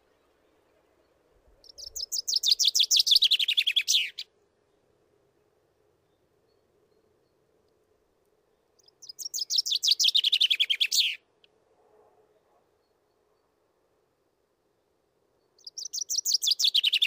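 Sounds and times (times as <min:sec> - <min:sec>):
chaffinch singing: 0:00.1 - 0:04.4, 0:08.5 - 0:11.2, 0:15.4 - 0:17.0.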